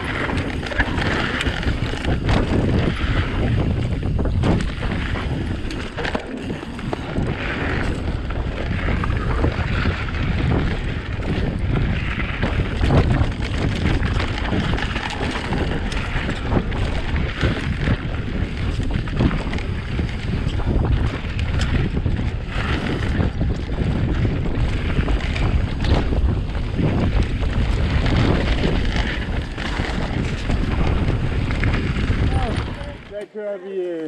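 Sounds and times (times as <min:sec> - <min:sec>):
bike knocks and rattles: 0:00.0 - 0:33.1
wind rumbling on microphone: 0:00.0 - 0:33.2.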